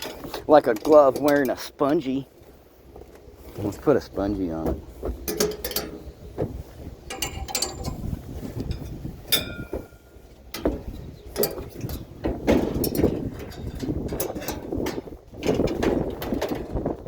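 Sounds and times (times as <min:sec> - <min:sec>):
metal parts clattering: 0:07.1 - 0:08.1
short metallic ring: 0:09.3 - 0:10.0.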